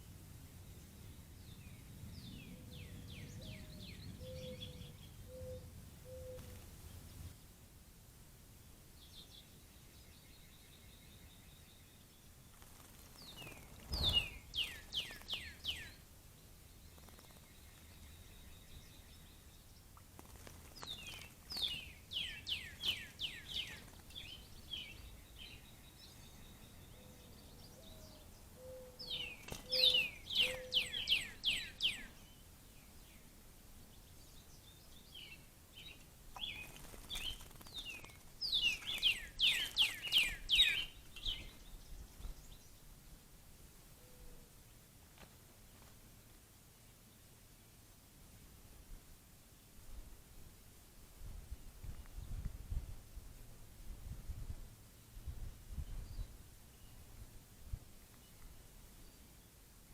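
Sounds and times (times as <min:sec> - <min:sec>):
songbirds singing: 0:00.0 - 0:07.6, 0:08.7 - 0:44.9, 0:54.8 - 0:59.9
high steady bird whistles: 0:29.6 - 0:32.1.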